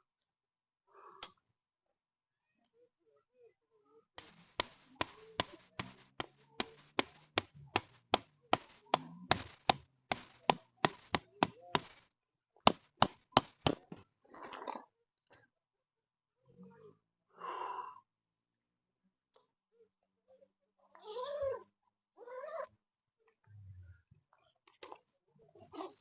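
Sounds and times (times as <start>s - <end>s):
hammer striking metal stake: 4.2s - 12.1s, 12.7s - 14.0s.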